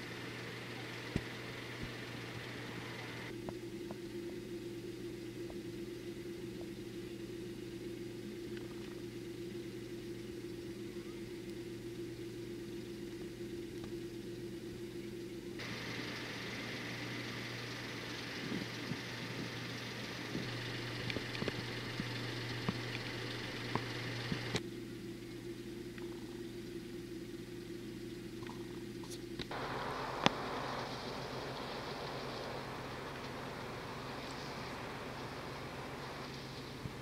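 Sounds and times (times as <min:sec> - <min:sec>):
engine drone: 0:00.0 - 0:37.0
thin high whine: 0:00.0 - 0:37.0
faint clicks: 0:20.3 - 0:24.6, 0:30.2 - 0:33.5.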